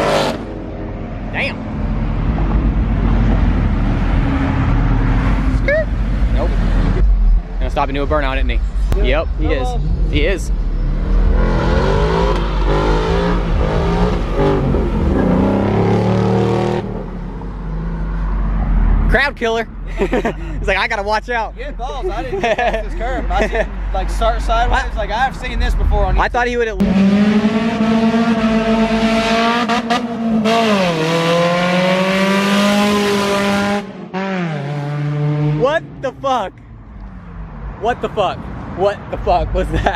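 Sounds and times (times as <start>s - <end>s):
car engine revving hard: 0.0s - 0.7s, 9.8s - 17.9s, 26.8s - 36.0s.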